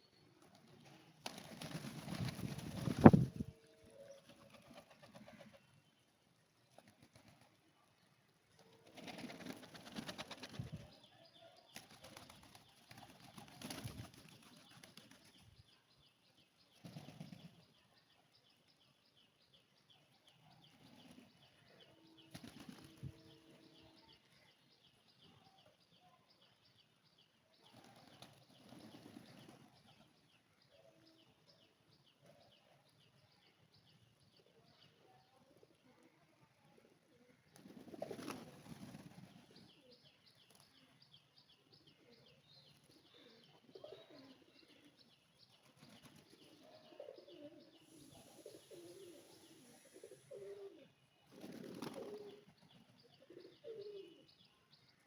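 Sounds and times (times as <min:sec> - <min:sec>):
pigeon wings flapping: 0:01.2 - 0:03.4, 0:04.3 - 0:05.5, 0:08.8 - 0:10.8, 0:11.8 - 0:15.3, 0:22.3 - 0:23.0, 0:37.6 - 0:39.4, 0:51.3 - 0:52.3.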